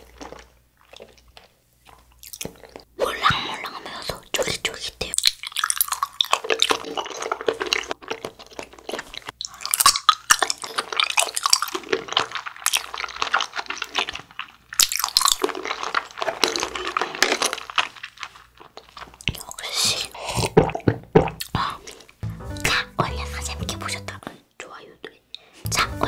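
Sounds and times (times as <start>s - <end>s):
sticky chewing mouth sounds: 0.0s - 24.4s.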